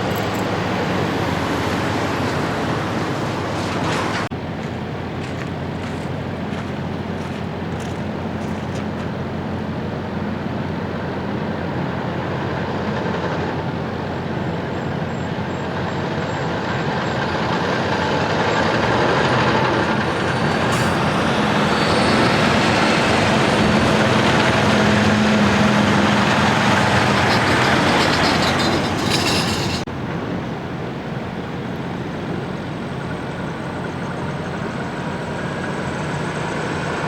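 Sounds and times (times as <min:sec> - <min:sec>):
truck diesel engine driving past: 0:00.0 - 0:04.3, 0:16.0 - 0:37.0.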